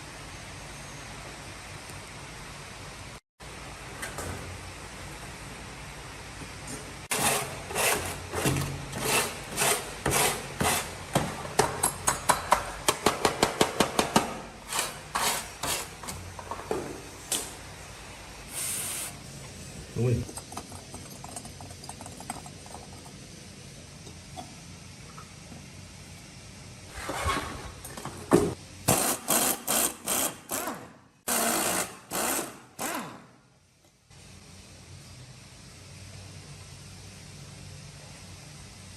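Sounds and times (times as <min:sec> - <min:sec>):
power drill bursts: 0:28.9 - 0:33.2.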